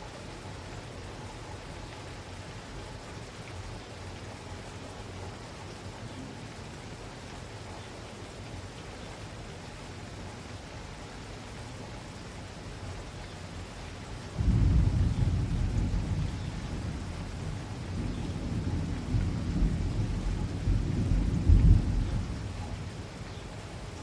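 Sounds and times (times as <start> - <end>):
steady rain falling: 0.0 - 24.0
low rumble of thunder: 14.2 - 24.0.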